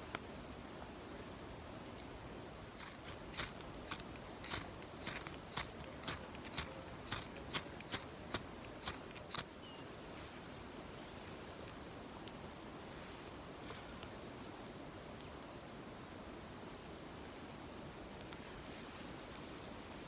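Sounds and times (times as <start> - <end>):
fire steel scraped with striker: 2.8 - 9.4.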